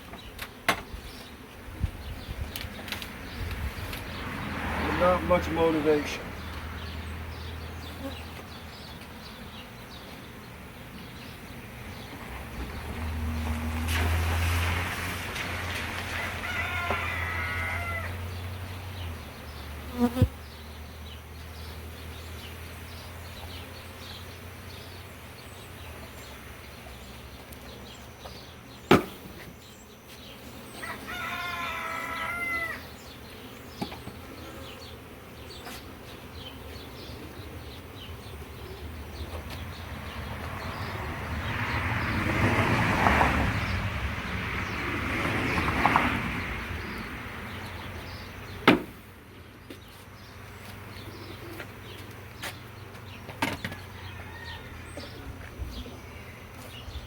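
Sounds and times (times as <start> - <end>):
honeybees buzzing: 0.0 - 57.0
bee flying past: 0.2 - 57.0
sharp knocks: 28.9 - 29.2, 48.6 - 49.0.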